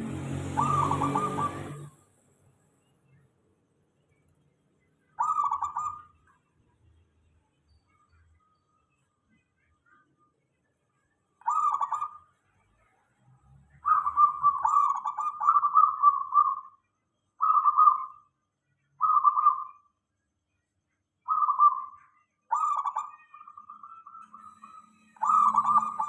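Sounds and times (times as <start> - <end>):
dove cooing: 0.0 - 1.9, 5.2 - 6.0, 11.5 - 12.1, 13.9 - 16.6, 25.2 - 26.0.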